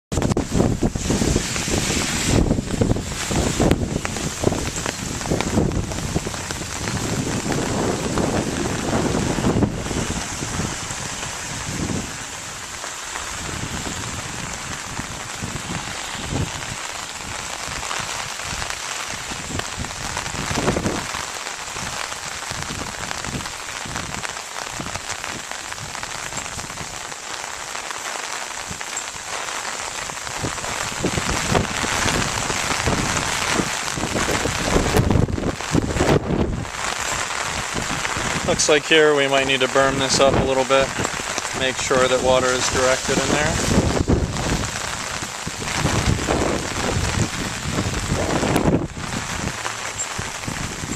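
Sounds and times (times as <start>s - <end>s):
low rumbles on microphone: 0.1s - 21.2s, 30.3s - 36.8s, 39.8s - 50.9s
steady rain falling: 0.1s - 50.9s.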